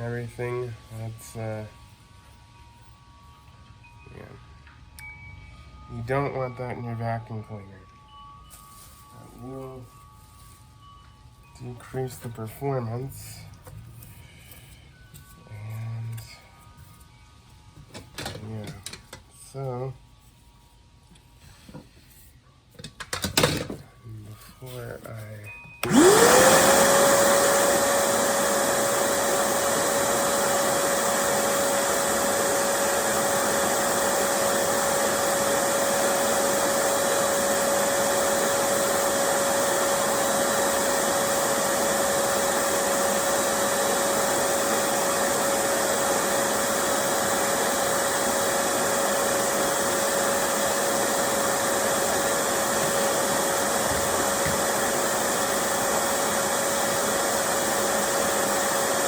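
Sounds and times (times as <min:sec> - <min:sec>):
small electric motor whirring: 0:25.8 - 0:59.0.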